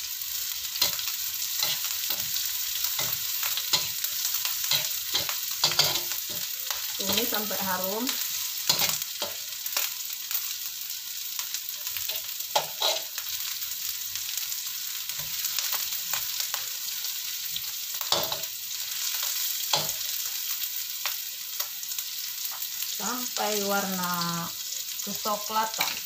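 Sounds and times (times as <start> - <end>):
oil sizzling in a wok: 0.0 - 26.0
metal spatula scraping a pan: 0.7 - 9.9, 11.9 - 13.3, 18.1 - 18.5.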